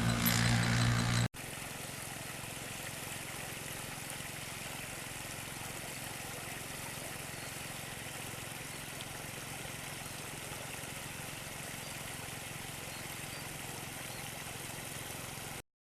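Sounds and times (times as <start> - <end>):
combine harvester engine idling: 0.0 - 1.2.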